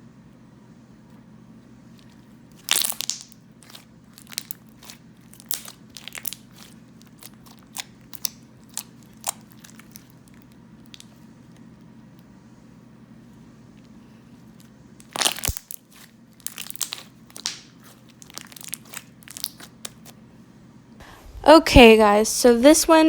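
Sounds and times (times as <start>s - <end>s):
slime crackling and popping: 2.0s - 11.7s, 14.5s - 20.2s.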